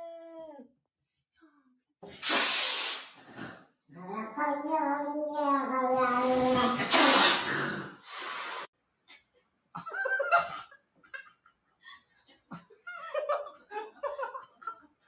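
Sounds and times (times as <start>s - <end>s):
people laughing: 9.8s - 15.0s.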